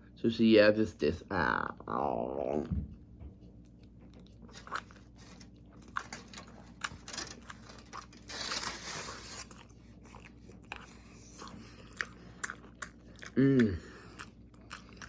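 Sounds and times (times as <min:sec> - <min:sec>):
chewing food: 0:03.2 - 0:15.0.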